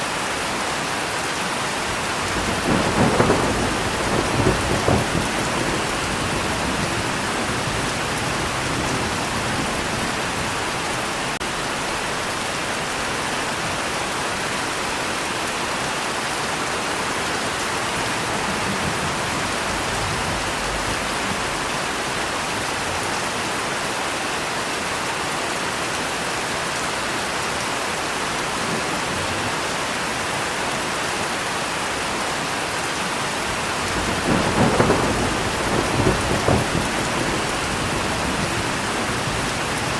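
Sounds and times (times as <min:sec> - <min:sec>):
steady rain falling: 0:00.0 - 0:39.9
low rumble of thunder: 0:02.2 - 0:11.1, 0:17.7 - 0:22.3, 0:33.7 - 0:39.9.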